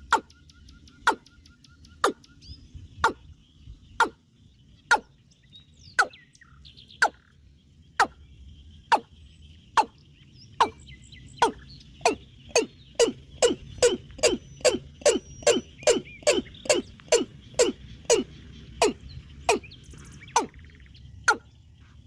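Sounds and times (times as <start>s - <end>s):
animal sharp calls: 0.0s - 2.3s, 3.0s - 3.3s, 4.0s - 4.2s, 4.9s - 5.1s, 6.0s - 6.2s, 8.9s - 9.1s, 9.8s - 10.0s, 11.4s - 21.5s
faint bird chirping: 0.0s - 22.0s.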